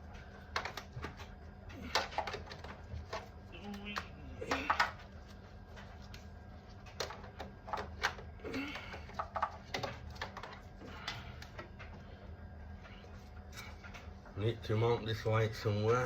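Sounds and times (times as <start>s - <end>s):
steady low hum: 0.0s - 16.0s
objects clicking and knocking: 0.5s - 3.4s, 6.8s - 11.9s.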